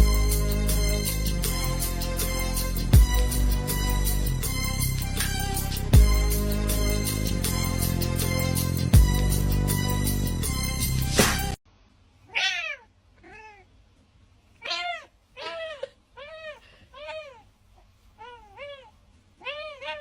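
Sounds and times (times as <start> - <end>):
music: 0.0 - 11.6
cat meowing: 12.3 - 13.7, 14.6 - 17.5, 18.2 - 20.0.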